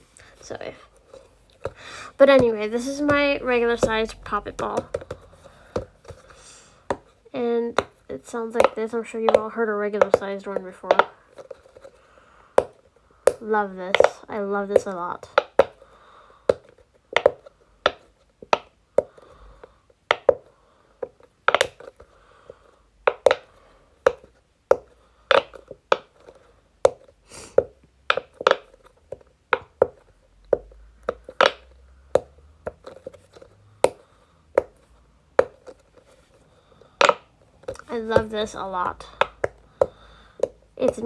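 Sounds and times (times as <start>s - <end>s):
fidget toy bubbles popping: 2.2s - 6.0s.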